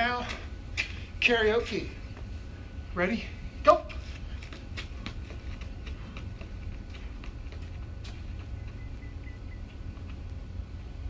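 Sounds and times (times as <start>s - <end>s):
steady low rumble: 0.0s - 11.0s
running footsteps tapping: 3.8s - 10.9s.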